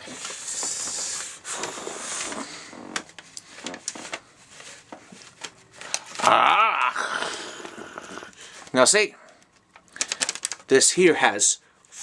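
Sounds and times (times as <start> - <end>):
paper bag rustling and crinkling: 0.0 - 6.4, 9.6 - 10.7
wavering vocal tone: 6.2 - 8.4.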